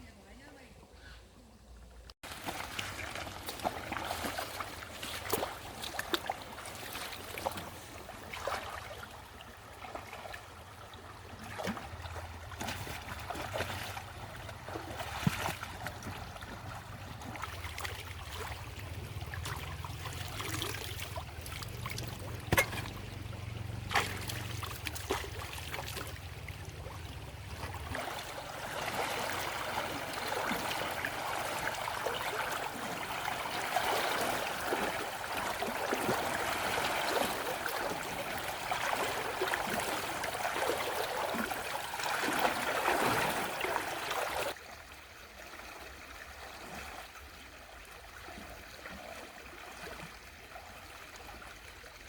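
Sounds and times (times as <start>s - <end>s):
water trickling and splashing: 2.2s - 52.0s
low hum: 16.1s - 28.5s.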